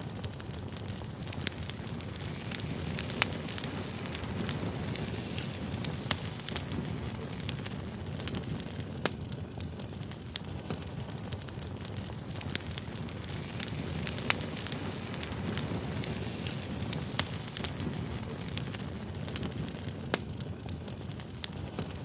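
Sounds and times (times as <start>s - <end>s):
firewood crackling and popping: 0.0s - 22.0s
low rumble of flames: 0.0s - 22.0s.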